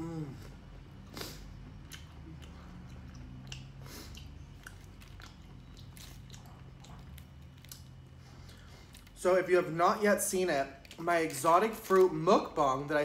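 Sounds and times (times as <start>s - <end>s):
low steady hum: 0.0s - 13.0s
person chewing food: 0.4s - 9.2s.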